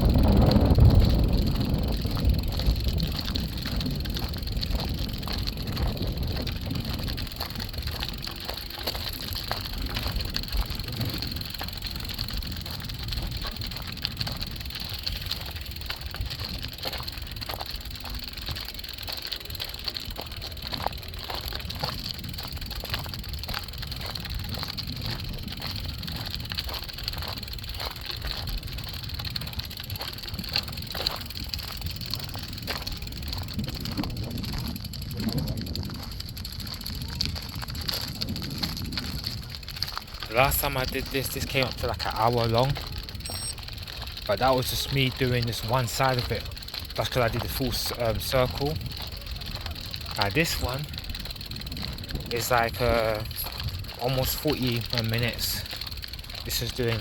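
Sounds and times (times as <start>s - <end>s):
faint footsteps: 0.0s - 57.0s
wind buffeting microphone: 0.0s - 57.0s
outdoor background: 39.4s - 51.7s.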